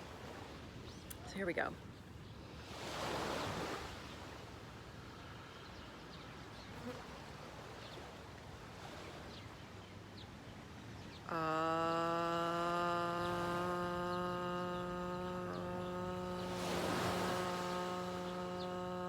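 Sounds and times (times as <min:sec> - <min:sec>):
faint insect chirps: 0:05.1 - 0:19.0
woman chanting ah: 0:11.2 - 0:19.0.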